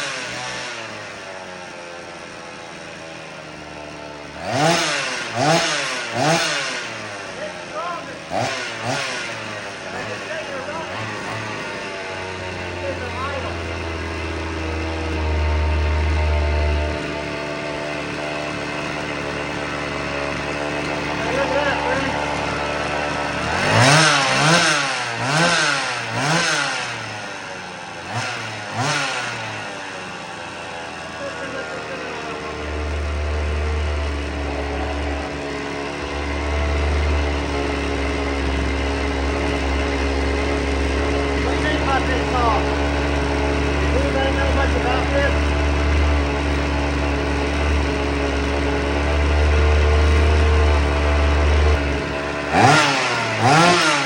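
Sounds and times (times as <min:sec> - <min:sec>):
chainsaw engine running: 0:00.0 - 0:54.0
deep low hum: 0:13.6 - 0:17.3.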